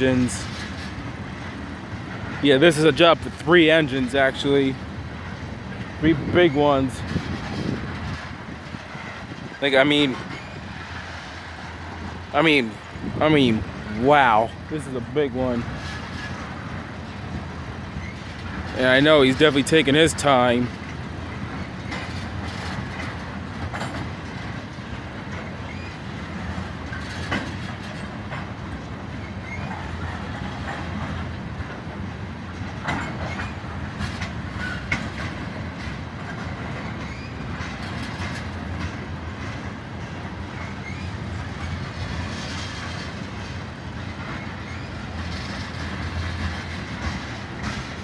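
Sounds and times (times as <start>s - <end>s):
train wheels rumbling on rails: 0.0s - 48.0s
wheels clanking over rail joints: 0.0s - 48.0s.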